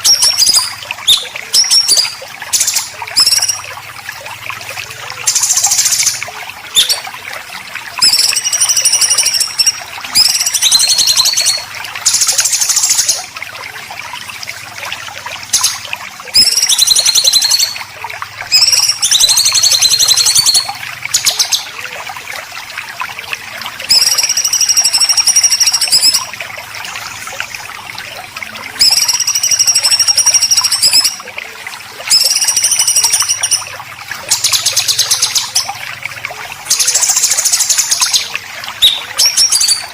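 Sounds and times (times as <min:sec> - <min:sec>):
harsh rasping songbird calls: 0:05.3 - 0:07.0, 0:36.7 - 0:39.9.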